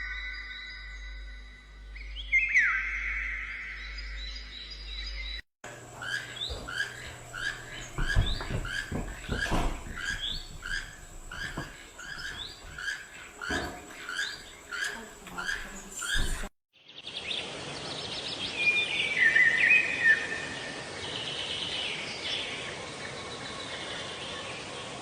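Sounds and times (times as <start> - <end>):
small bird chirping: 2.0 - 16.5
low knocks: 5.7 - 16.5.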